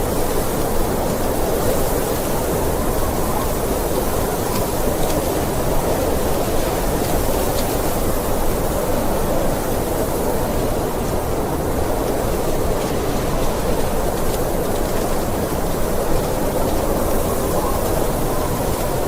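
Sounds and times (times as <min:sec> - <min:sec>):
deep rushing snowstorm wind: 0:00.0 - 0:19.0.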